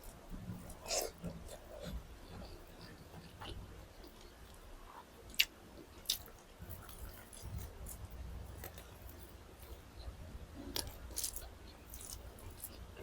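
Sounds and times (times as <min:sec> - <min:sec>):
person chewing food: 0:00.0 - 0:09.9, 0:10.6 - 0:13.0.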